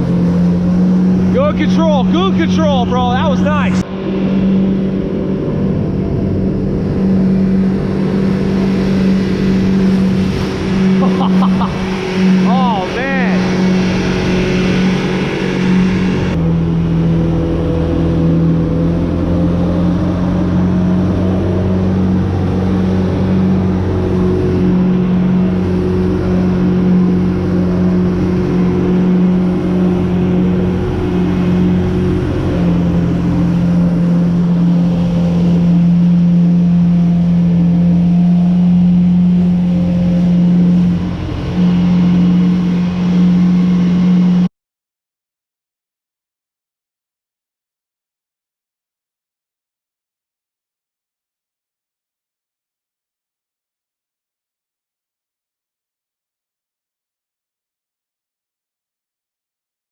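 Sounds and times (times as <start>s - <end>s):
jet ski engine running: 0.0s - 44.5s.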